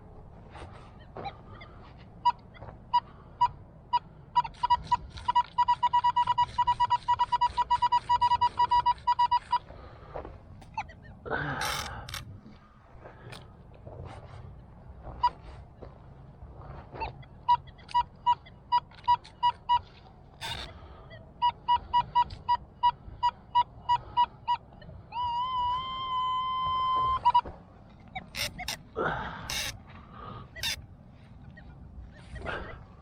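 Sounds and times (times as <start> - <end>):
metal detector beeping: 1.0 - 9.7, 10.6 - 12.2, 17.0 - 30.8, 31.4 - 33.0.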